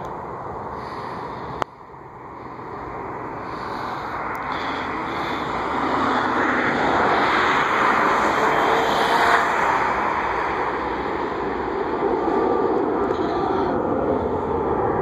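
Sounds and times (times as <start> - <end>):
jet engines roaring past: 0.0 - 15.0.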